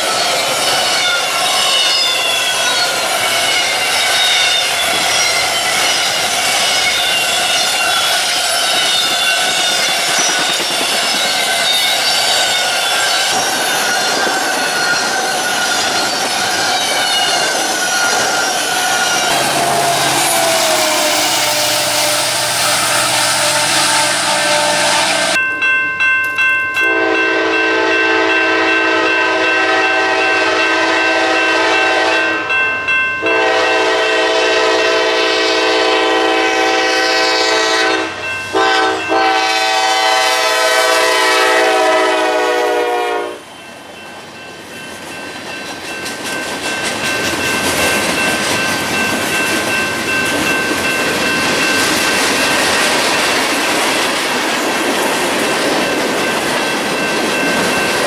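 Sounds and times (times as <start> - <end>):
locomotive air horn blasts: 19.3 - 25.4, 26.9 - 32.5, 33.2 - 43.5.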